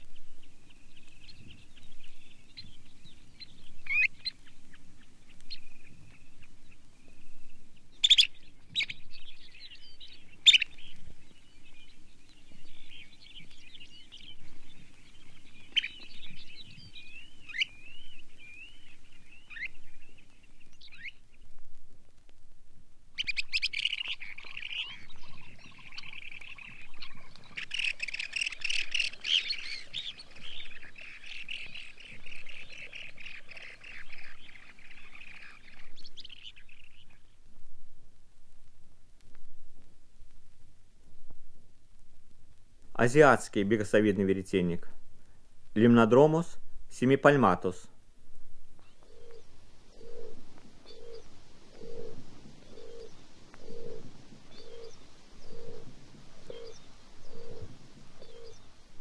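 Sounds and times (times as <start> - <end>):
shorebird calls: 3.8 - 4.5, 8.0 - 9.0, 10.4 - 10.8, 15.3 - 16.0, 16.8 - 17.8, 23.2 - 37.2, 48.8 - 58.8
wavering bird trill: 49.0 - 58.6.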